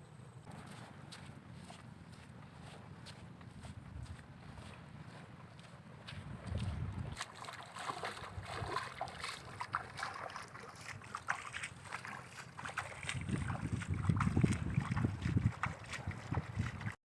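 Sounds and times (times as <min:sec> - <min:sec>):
water splashes and clicks: 0:00.5 - 0:17.0
wind gusting on microphone: 0:06.2 - 0:07.2, 0:13.1 - 0:17.0.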